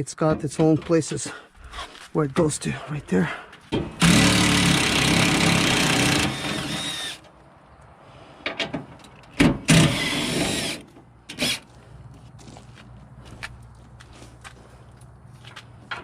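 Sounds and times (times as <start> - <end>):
power drill running: 4.0 - 7.2.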